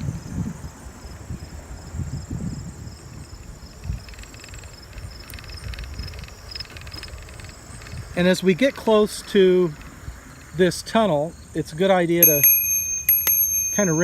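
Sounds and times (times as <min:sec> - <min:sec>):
wind rumble on microphone: 0:00.0 - 0:10.6
crickets and insects chirping: 0:00.0 - 0:14.0.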